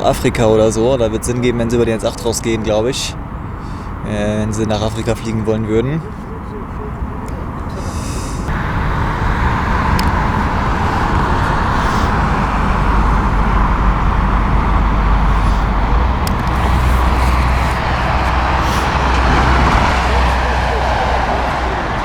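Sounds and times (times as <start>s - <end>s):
jet engines taxiing: 0.0s - 22.0s.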